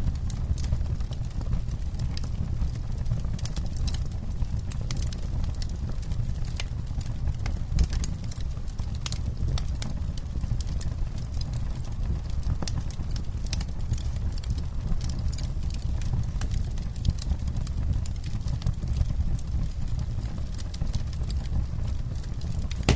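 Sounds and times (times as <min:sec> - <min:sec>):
campfire crackling: 0:00.0 - 0:22.9.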